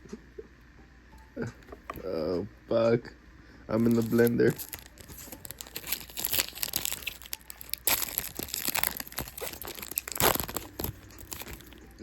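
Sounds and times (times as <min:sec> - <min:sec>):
foil wrappers crinkling: 0:03.7 - 0:11.8.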